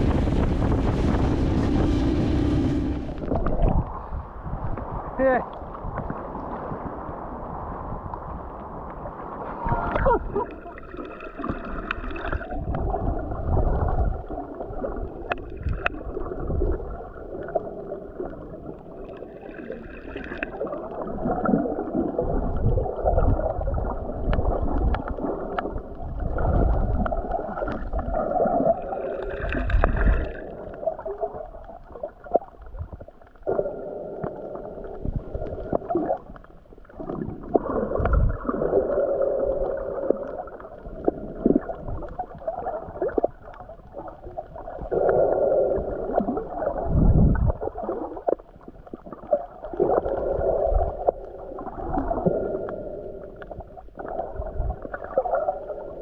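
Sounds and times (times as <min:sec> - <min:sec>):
low rumbling: 0:00.0 - 0:05.2
water gurgling and sloshing: 0:00.0 - 0:56.0.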